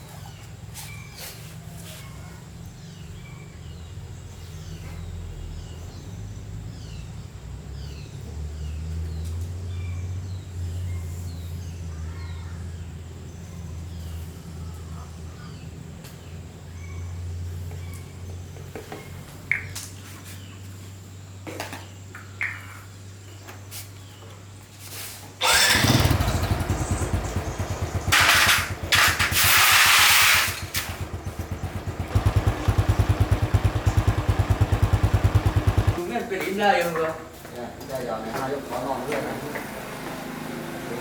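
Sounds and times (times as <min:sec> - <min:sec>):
small birds chirping: 0:00.0 - 0:29.9, 0:30.5 - 0:40.0.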